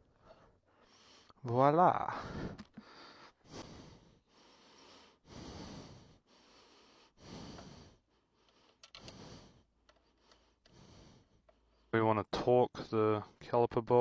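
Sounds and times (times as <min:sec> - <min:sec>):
person breathing slowly: 0:00.0 - 0:01.4, 0:02.1 - 0:11.9.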